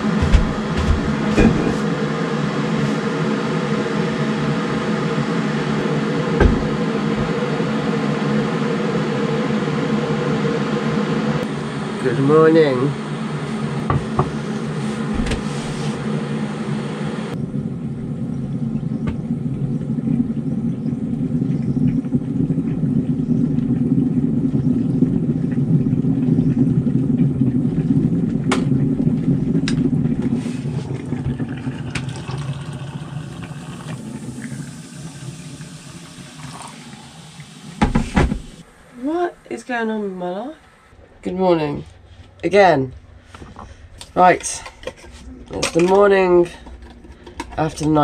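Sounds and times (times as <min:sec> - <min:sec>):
low rumble: 0:00.0 - 0:02.0, 0:04.4 - 0:08.2, 0:17.3 - 0:31.5.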